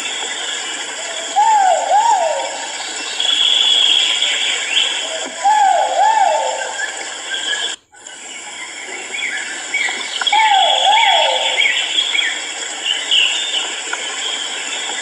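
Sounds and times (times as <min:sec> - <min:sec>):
steady high hiss: 0:00.0 - 0:15.0
pheasant calling: 0:00.9 - 0:07.8, 0:08.7 - 0:13.7.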